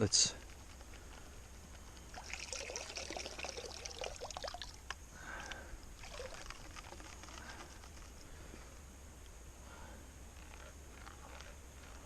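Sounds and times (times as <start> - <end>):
water pouring and trickling: 2.1 - 7.1.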